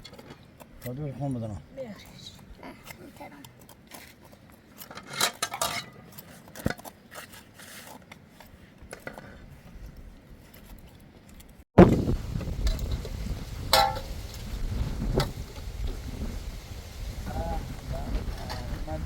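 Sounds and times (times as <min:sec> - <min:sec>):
dishes and cutlery clinking: 0:04.8 - 0:06.9
loud low rumbling noise: 0:11.8 - 0:19.0.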